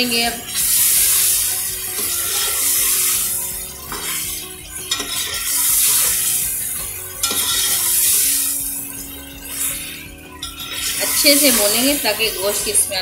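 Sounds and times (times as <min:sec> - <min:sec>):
chicken sizzling in hot oil: 0:00.0 - 0:13.0
metal ladle scraping and knocking pot: 0:02.0 - 0:08.3.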